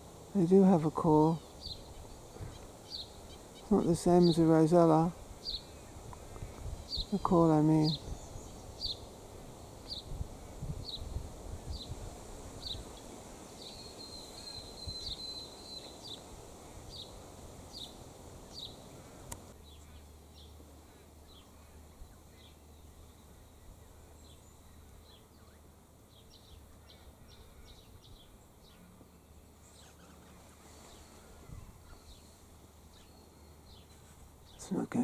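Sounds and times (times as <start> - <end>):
small bird chirping: 0.4 - 9.2, 12.6 - 20.6.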